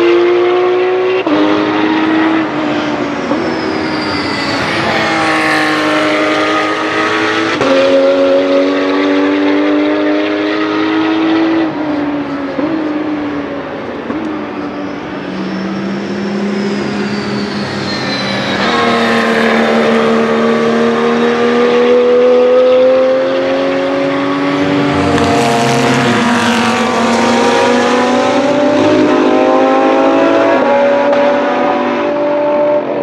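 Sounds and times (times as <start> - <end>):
race car engines passing: 0.0 - 33.0.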